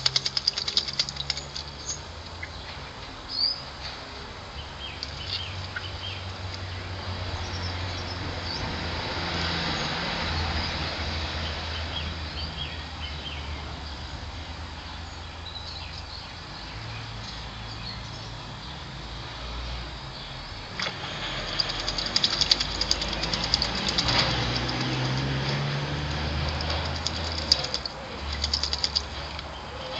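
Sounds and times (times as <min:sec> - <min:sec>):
rapid pattering ticks: 0:00.0 - 0:02.0, 0:21.2 - 0:29.5
small birds chirping: 0:00.0 - 0:03.9, 0:04.5 - 0:08.7, 0:14.8 - 0:19.0, 0:20.1 - 0:29.9.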